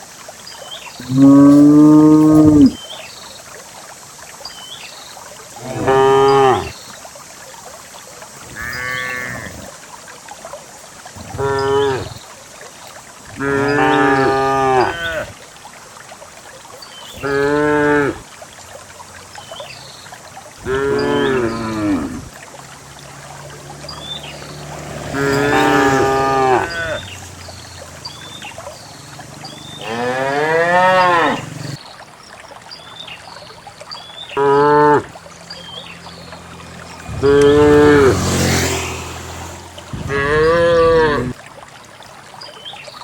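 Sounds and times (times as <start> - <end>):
cattle mooing: 1.1 - 2.8, 5.6 - 6.7, 8.6 - 9.6, 11.3 - 12.1, 13.4 - 15.3, 20.6 - 22.3, 25.0 - 27.1, 29.8 - 31.7, 37.2 - 38.4, 40.0 - 41.4.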